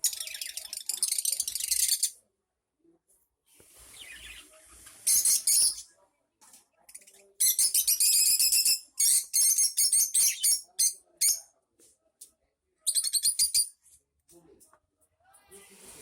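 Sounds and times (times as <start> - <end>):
bird chirping: 7.4 - 11.4.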